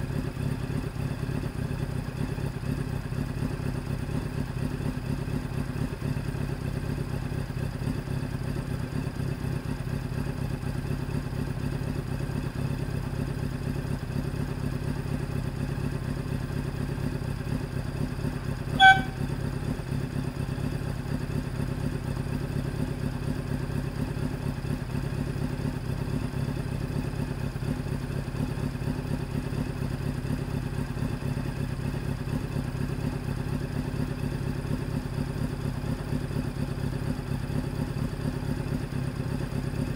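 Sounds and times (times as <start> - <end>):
motorcycle engine idling: 0.0 - 39.9
high-pitched tone: 18.8 - 19.2.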